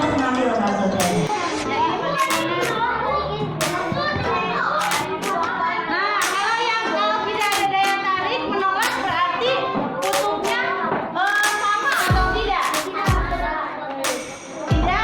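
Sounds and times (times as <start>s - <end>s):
hand claps: 1.0s - 1.3s, 2.2s - 2.8s, 3.6s - 4.0s, 4.8s - 5.5s, 6.2s - 6.6s, 7.4s - 8.0s, 8.8s - 9.2s, 10.0s - 10.6s, 11.3s - 13.3s, 14.0s - 14.4s
children singing together: 1.0s - 15.0s.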